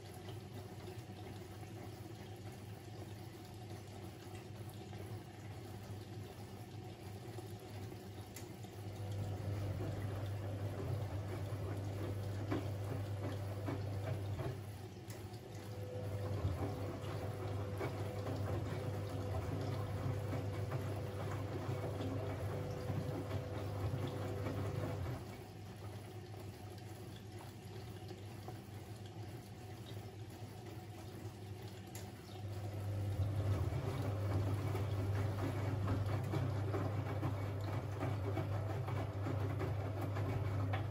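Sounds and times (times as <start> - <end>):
water sloshing: 8.8 - 25.3
washing machine drum turning: 8.9 - 25.5, 32.2 - 40.9.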